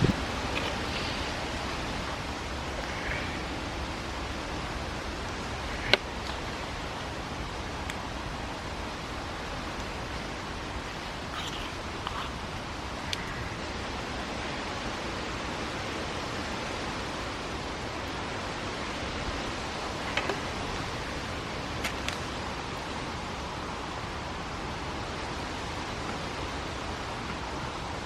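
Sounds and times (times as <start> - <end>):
wood fire hissing: 0.0 - 14.6.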